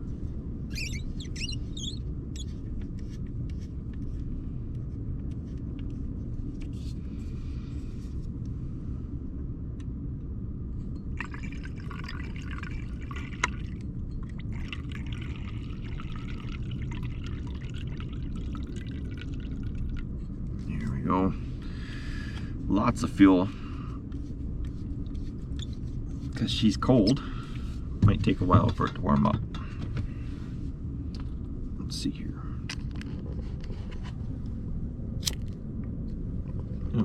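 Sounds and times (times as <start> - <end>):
steady low rumble: 0.0 - 37.0
liquid fuel pouring: 11.2 - 20.1.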